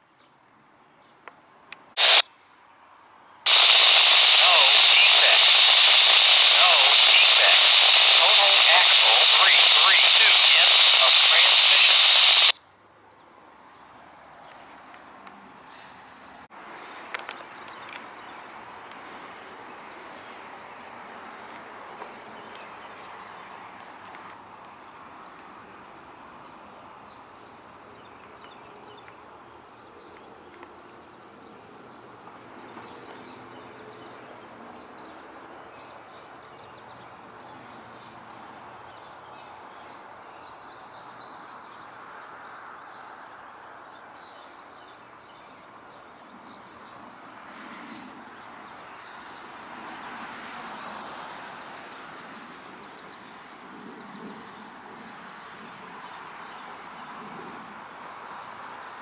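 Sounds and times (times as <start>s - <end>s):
faint birdsong: 2.0s - 16.0s, 16.7s - 49.7s.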